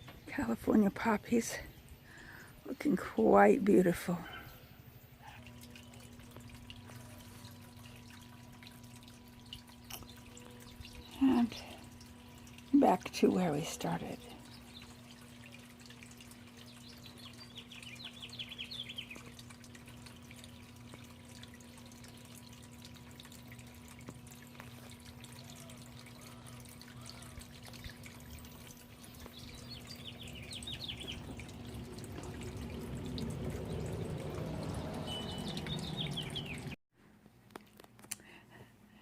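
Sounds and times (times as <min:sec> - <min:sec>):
steady low hum: 0:00.0 - 0:25.4
songbird singing: 0:05.4 - 0:22.2, 0:22.8 - 0:36.8.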